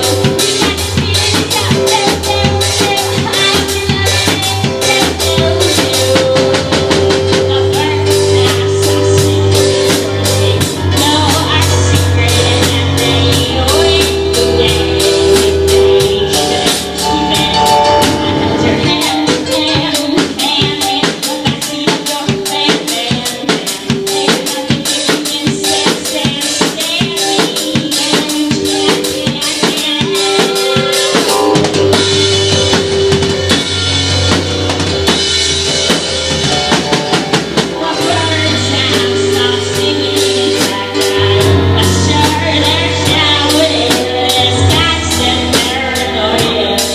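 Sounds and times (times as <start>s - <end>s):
bass guitar: 0.0s - 19.6s, 30.6s - 46.9s
drum kit hits: 0.0s - 46.9s.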